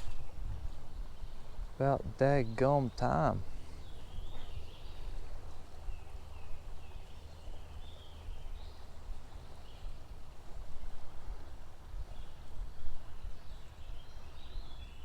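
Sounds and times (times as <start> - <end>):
small birds chirping: 0.0 - 10.2, 13.2 - 15.0.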